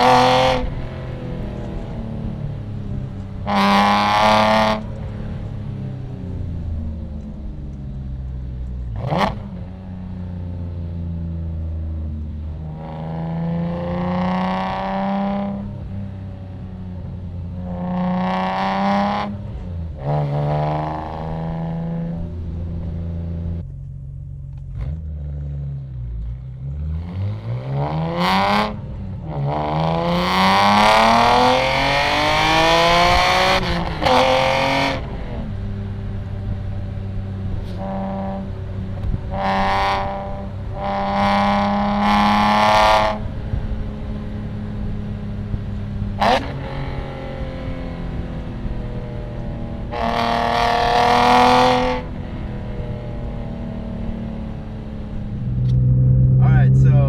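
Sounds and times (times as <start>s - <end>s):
car engine revving through gears: 0.0s - 10.5s, 12.2s - 23.6s, 24.6s - 57.0s
exhaust pops: 37.5s - 38.2s.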